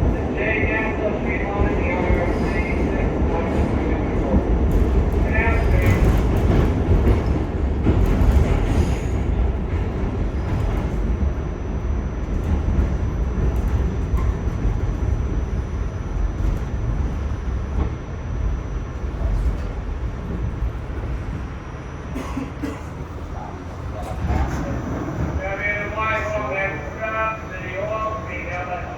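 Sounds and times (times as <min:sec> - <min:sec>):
train wheels rumbling on rail: 0:00.0 - 0:28.9.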